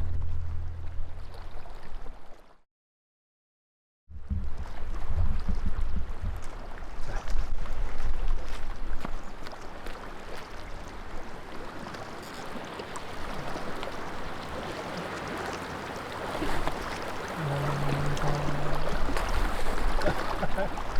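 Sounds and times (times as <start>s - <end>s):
low steady hum: 0.0s - 2.0s, 13.1s - 20.9s
wind noise: 4.1s - 9.1s
water lapping: 4.5s - 20.9s.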